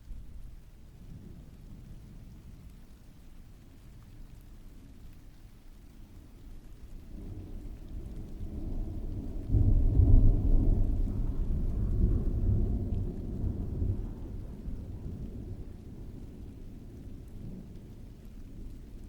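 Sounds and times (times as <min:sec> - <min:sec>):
falling rain: 0:00.0 - 0:19.0
rolling thunder: 0:07.0 - 0:19.0.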